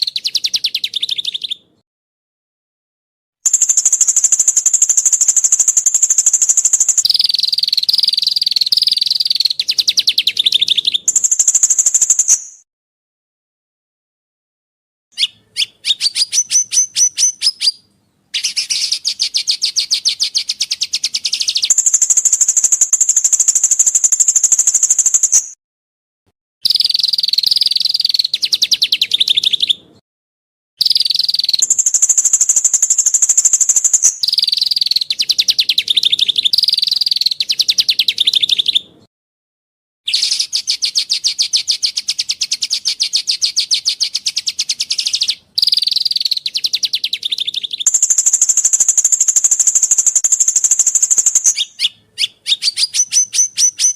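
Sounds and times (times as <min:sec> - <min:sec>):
songbird trills and rattles: 0:00.0 - 0:01.6, 0:03.5 - 0:12.6, 0:15.2 - 0:25.5, 0:26.6 - 0:29.8, 0:30.8 - 0:38.8, 0:40.1 - 0:53.9.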